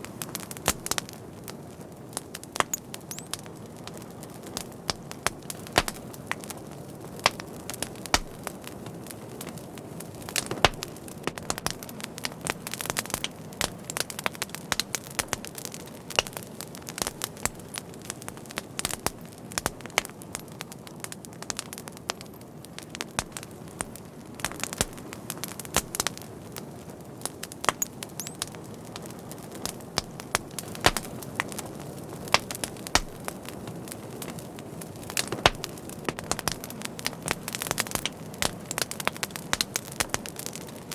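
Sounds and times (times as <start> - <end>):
flame rushing: 0.0 - 13.6, 23.3 - 40.9
fire crackling and popping: 0.0 - 40.9.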